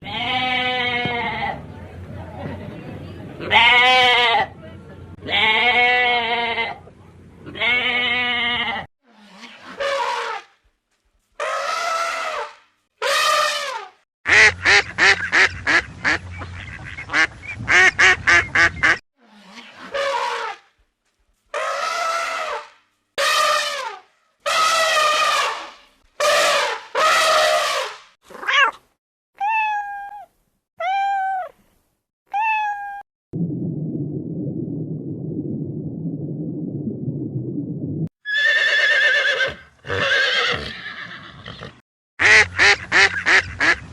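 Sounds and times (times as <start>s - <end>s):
cat meowing: 28.3s - 28.8s, 29.4s - 31.6s, 32.3s - 33.0s
low steady rumbling: 33.4s - 38.1s.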